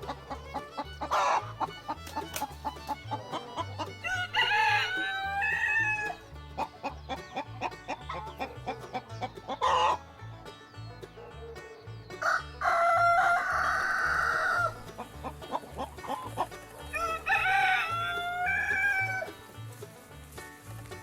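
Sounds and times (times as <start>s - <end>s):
hen clucks: 0.0s - 21.0s
rooster crowing: 3.8s - 6.2s, 12.2s - 14.8s, 16.8s - 19.4s.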